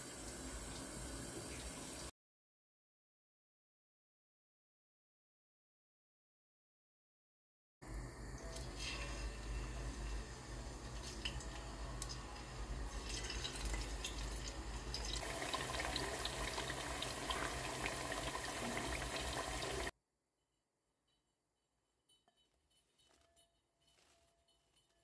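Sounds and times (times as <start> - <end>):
water running from tap: 0.0 - 2.1, 12.9 - 19.9
small clinks and knocks: 22.1 - 25.0.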